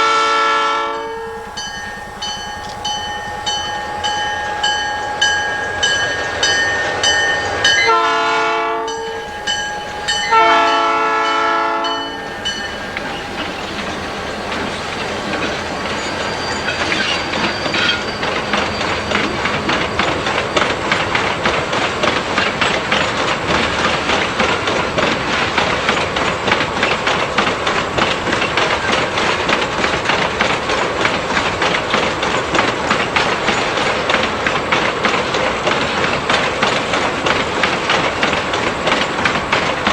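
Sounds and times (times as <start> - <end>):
locomotive air horn: 0.0 - 21.9
bell ringing: 0.0 - 24.1
train wheels clicking over rails: 0.0 - 39.9.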